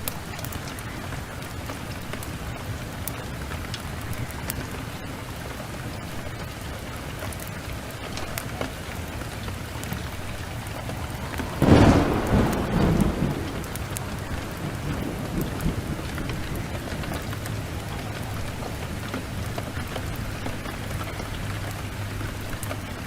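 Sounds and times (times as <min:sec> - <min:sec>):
heavy rain falling: 0:00.0 - 0:23.0
loud thunderclap: 0:09.5 - 0:20.8.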